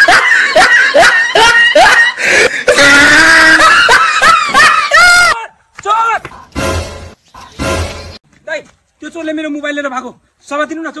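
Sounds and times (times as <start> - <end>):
shrill wailing yelps: 2.8 - 5.4.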